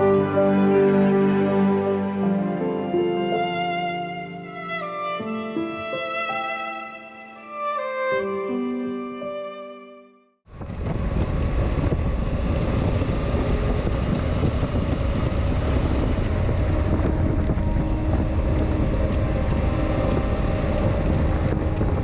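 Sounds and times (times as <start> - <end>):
motorcycle engine drone: 10.5 - 22.0
wind buffeting microphone: 10.5 - 22.0.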